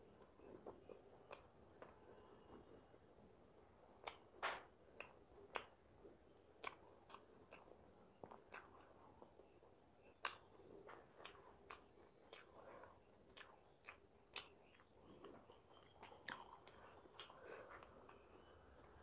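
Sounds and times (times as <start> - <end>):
chewing fried snack: 0.1 - 2.7, 3.9 - 19.0
wet mouth clicks and smacks: 4.0 - 4.3, 5.0 - 5.8, 6.6 - 9.0, 10.2 - 18.2.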